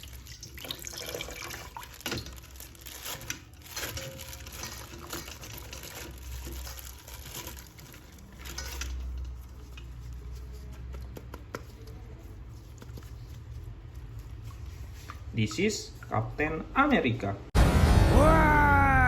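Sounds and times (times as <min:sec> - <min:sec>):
wrappings crinkling: 0:00.0 - 0:11.2
low hum: 0:17.6 - 0:19.0.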